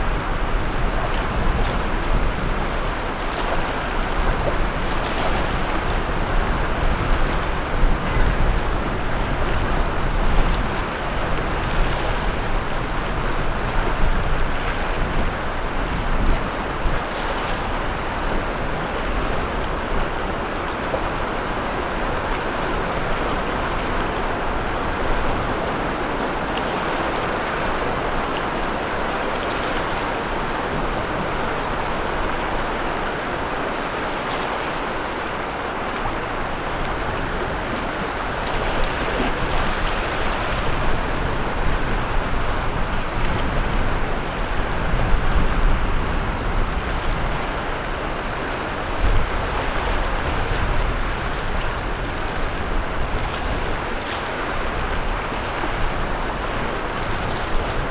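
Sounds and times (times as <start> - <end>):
low wind rumble: 0.0 - 57.9
ocean waves breaking: 0.0 - 57.9.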